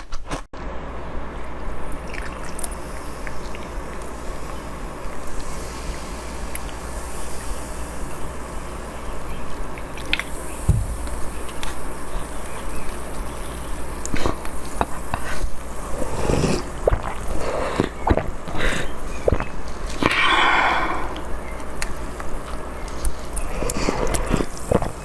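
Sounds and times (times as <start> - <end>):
wet chewing and mouth clicks: 12.4 - 25.0.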